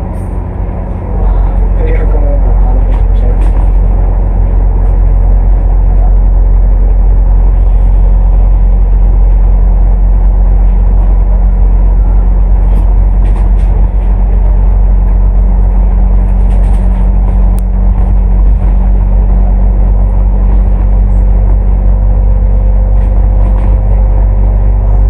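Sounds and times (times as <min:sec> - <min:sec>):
bus engine low drone: 0:00.0 - 0:25.0.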